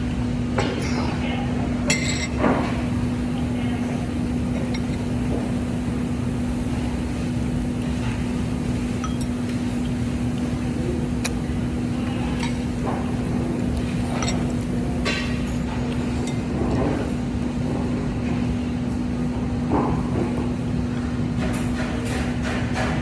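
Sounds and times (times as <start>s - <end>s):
tableware clinking: 1.9s - 2.8s, 8.9s - 9.5s, 13.8s - 17.1s.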